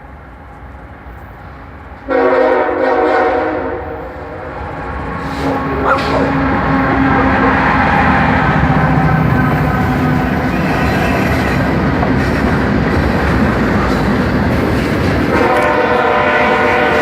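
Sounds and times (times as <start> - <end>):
freight train rumbling past: 0.0 - 17.0
locomotive horn chord: 2.0 - 4.5, 15.3 - 17.0.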